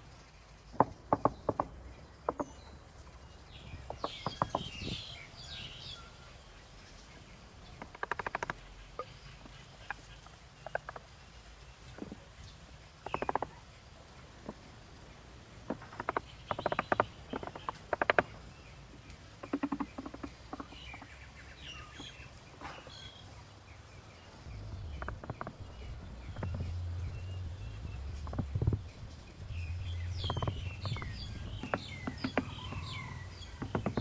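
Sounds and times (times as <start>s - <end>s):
faint bird chirps: 0.0s - 34.0s
rapid clicking and scratching: 7.7s - 8.7s, 15.6s - 18.4s, 19.0s - 21.2s, 24.5s - 34.0s
low hum: 24.4s - 33.1s.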